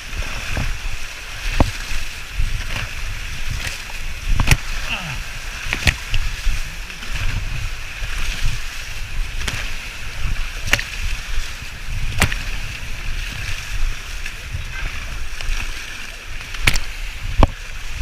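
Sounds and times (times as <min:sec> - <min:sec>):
rushing river water: 0:00.0 - 0:18.0
sharp knocks: 0:12.2 - 0:12.4.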